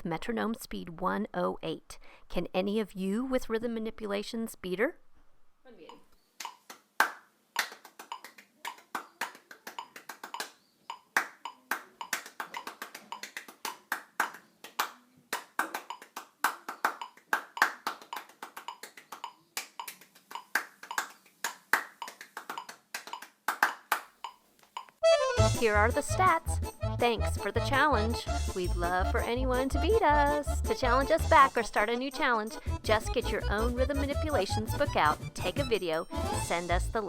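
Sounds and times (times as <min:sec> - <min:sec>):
hands clapping fast rhythm: 0:06.4 - 0:24.2, 0:25.3 - 0:36.8.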